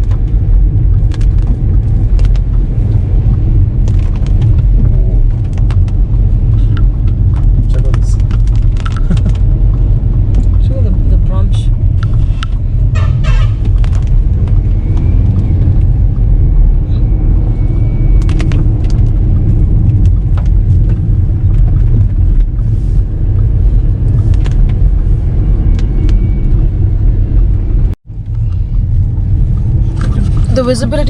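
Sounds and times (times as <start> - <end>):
car driving on wet road: 0.0 - 31.0.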